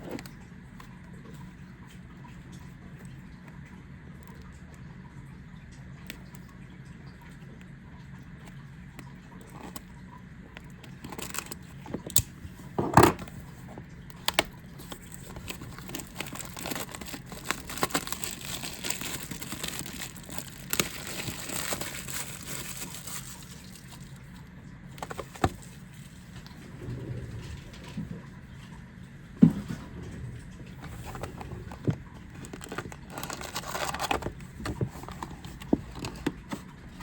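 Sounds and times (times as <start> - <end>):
plastic packaging crinkling and tearing: 10.9 - 12.4, 14.1 - 24.4, 25.0 - 26.1, 30.8 - 36.7.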